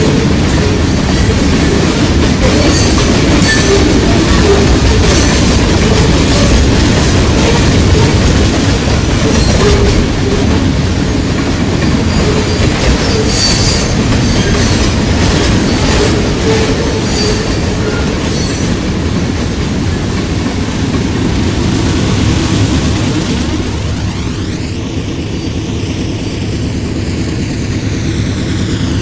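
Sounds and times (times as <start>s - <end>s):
wheel flange squeals: 0.0s - 8.3s, 11.7s - 18.8s
rumble of train wheels on rail: 0.0s - 29.0s.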